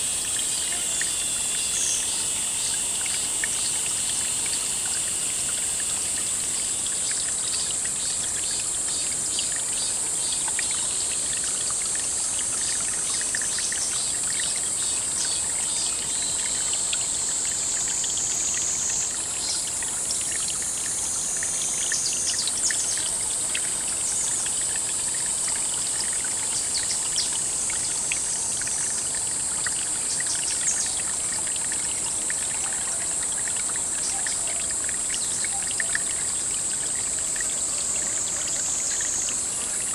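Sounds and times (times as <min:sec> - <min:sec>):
high steady hiss: 0:00.0 - 0:11.0, 0:12.3 - 0:39.9
water trickling: 0:00.0 - 0:39.9.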